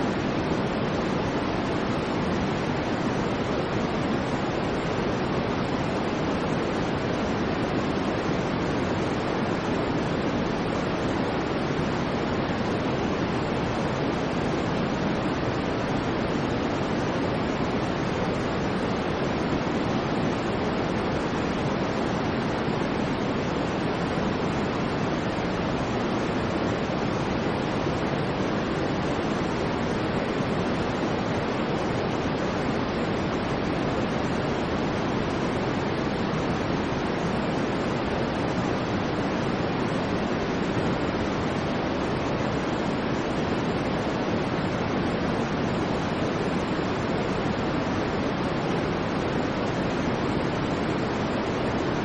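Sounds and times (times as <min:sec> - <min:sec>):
white noise hiss: 0:00.0 - 0:52.0.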